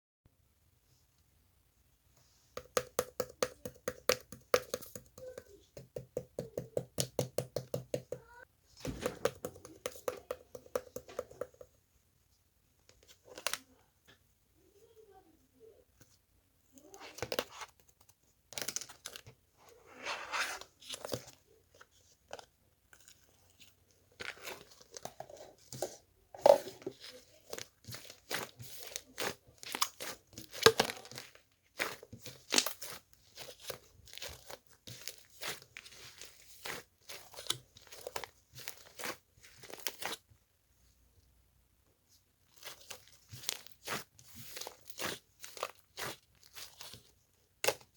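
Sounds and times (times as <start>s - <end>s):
hands crinkling crunchy material: 42.5s - 47.9s.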